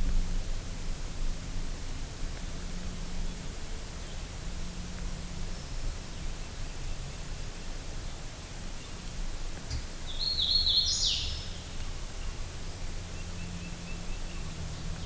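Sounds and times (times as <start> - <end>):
steady outdoor hiss: 0.0 - 15.0
songbird singing: 9.7 - 11.6.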